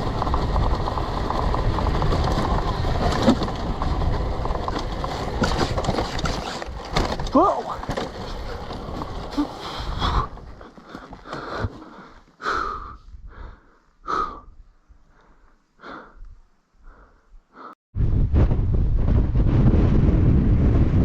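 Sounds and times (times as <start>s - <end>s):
person breathing hard: 9.3s - 17.8s.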